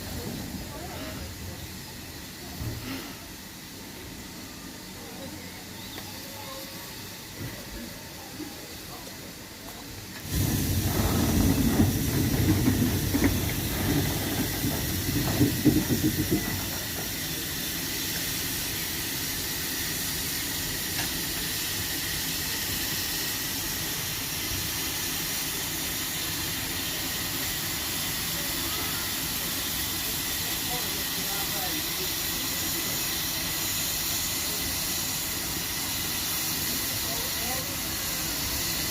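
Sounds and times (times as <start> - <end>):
steam locomotive hissing: 0.0 - 38.9
steam puffs: 0.0 - 38.9.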